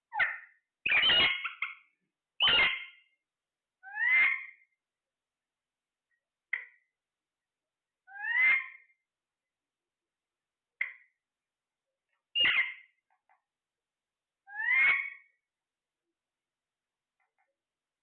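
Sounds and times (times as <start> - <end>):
parrot chirps and calls: 0.1 - 3.2, 3.8 - 4.8, 8.0 - 9.0, 12.3 - 13.1, 14.4 - 15.4.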